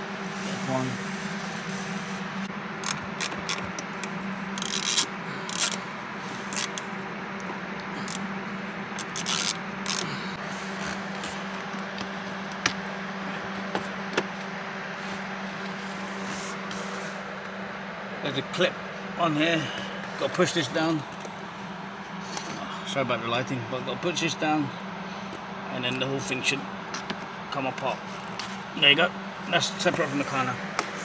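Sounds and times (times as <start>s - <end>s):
steady low hum: 0.0s - 31.0s
plastic trim rubbing and scraping: 9.0s - 14.5s.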